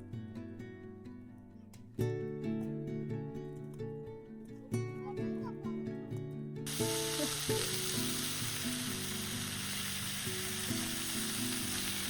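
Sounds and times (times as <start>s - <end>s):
soft guitar music: 0.0s - 12.0s
food sizzling in frying pan: 6.7s - 12.0s.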